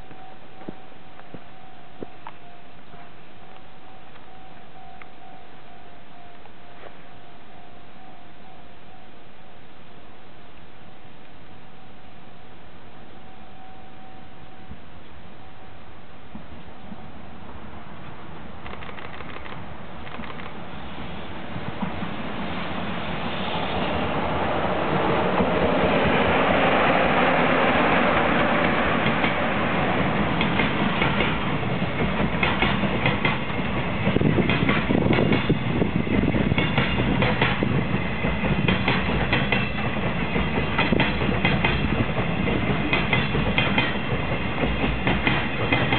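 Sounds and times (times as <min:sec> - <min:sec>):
locomotive rushing past: 0:16.6 - 0:45.9
wheels clicking over rail joints: 0:18.0 - 0:20.7, 0:28.2 - 0:45.9.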